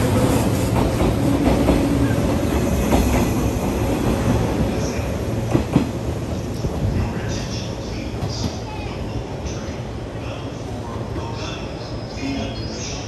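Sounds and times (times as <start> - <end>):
train wheels rumbling on rail: 0.0 - 12.4.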